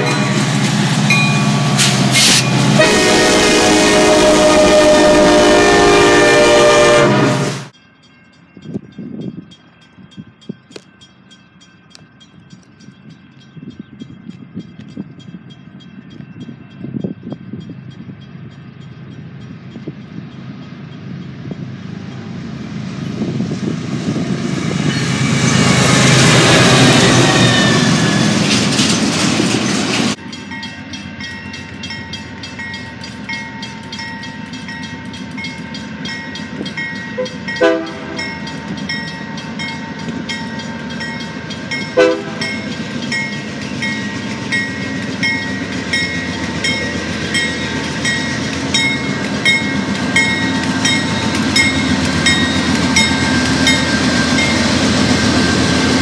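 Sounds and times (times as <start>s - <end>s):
train horn: 0.0s - 0.4s, 2.7s - 7.7s, 37.2s - 38.4s, 41.9s - 42.6s
train bell ringing: 0.0s - 3.2s, 7.7s - 56.0s
freight train passing: 0.0s - 56.0s.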